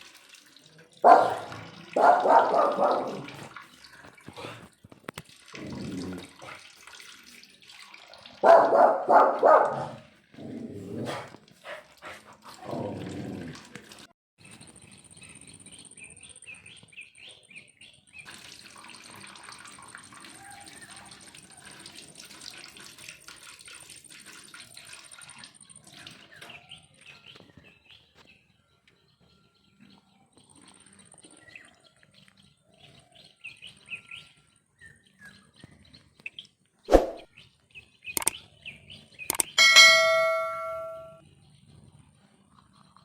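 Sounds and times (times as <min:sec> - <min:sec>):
struck metal object ringing: 0:39.6 - 0:41.2.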